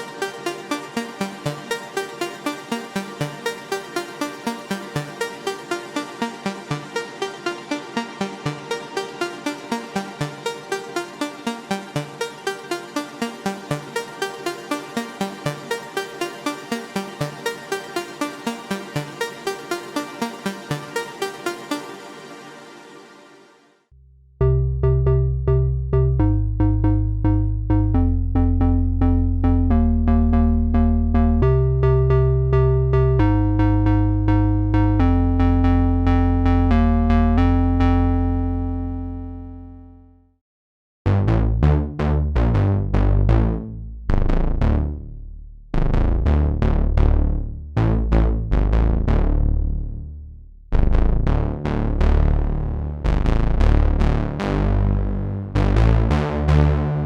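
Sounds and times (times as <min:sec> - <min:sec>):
quick pulsing synth rhythm: 0:00.0 - 0:22.6
bright plucked synth chords: 0:00.0 - 0:23.5, 0:24.4 - 0:39.9
synthesizer bass and melody: 0:00.0 - 0:23.8, 0:24.4 - 0:40.1, 0:41.1 - 0:45.2, 0:45.8 - 0:50.2, 0:50.8 - 0:57.0.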